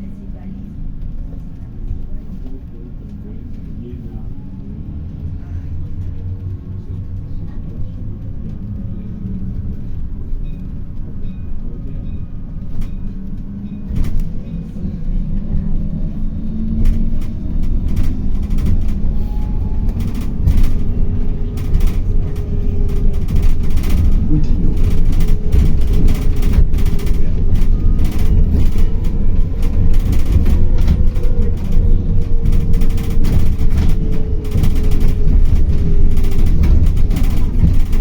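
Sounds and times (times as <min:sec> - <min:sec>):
bus engine rumble with whine: 0:00.0 - 0:38.0
rattles and knocks: 0:12.1 - 0:38.0.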